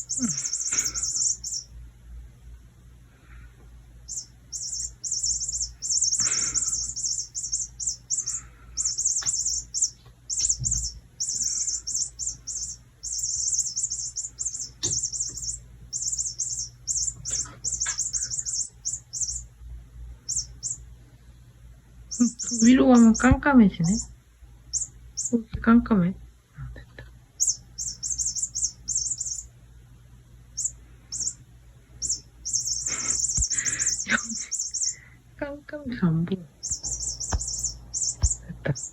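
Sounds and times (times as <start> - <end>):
electronic bird chirping: 0.0 - 1.7, 4.1 - 19.5, 20.2 - 20.9, 22.1 - 24.1, 24.7 - 25.4, 27.4 - 29.6, 30.5 - 31.4, 32.0 - 35.1, 36.6 - 38.9
light taps: 36.3 - 38.4.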